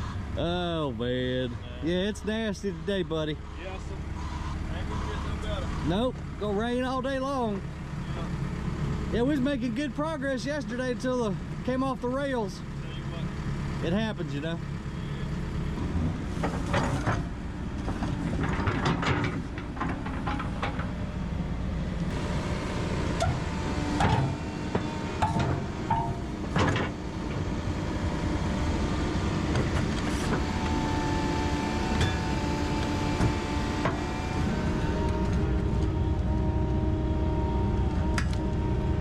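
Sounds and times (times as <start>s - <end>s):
excavator diesel engine running: 0.0s - 39.0s
metallic clanks from steel tracks: 16.4s - 21.2s, 23.1s - 27.4s.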